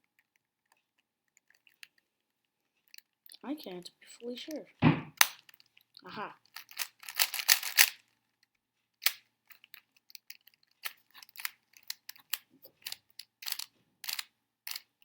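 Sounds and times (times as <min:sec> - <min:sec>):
plastic puzzle cube clicking: 0:05.2 - 0:05.8, 0:06.4 - 0:08.1, 0:09.0 - 0:14.9.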